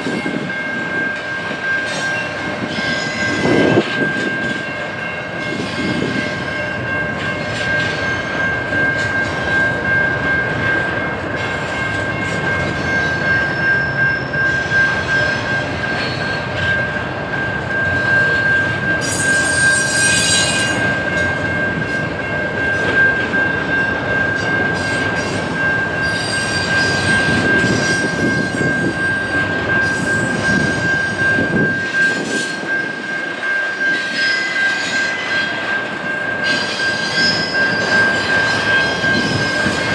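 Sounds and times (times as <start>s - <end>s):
train wheels rumbling on rails: 0.0s - 39.9s
sharp wheel screech: 19.0s - 20.9s
high wheel squeal: 19.0s - 21.2s, 29.8s - 33.2s, 33.8s - 35.6s, 36.4s - 39.9s.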